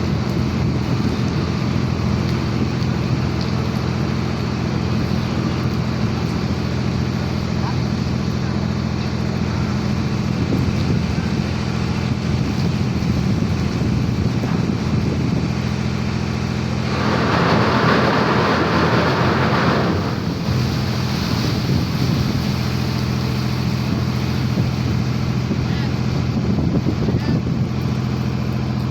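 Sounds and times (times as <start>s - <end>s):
ship engine humming: 0.1s - 26.6s
rushing noise: 16.4s - 23.3s.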